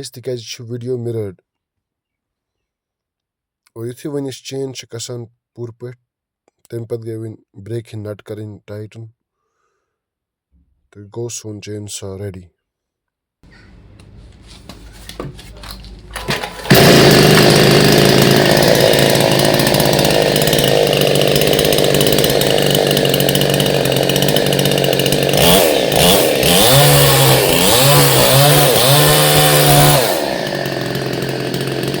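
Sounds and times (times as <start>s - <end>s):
chainsaw engine revving: 13.5s - 32.0s.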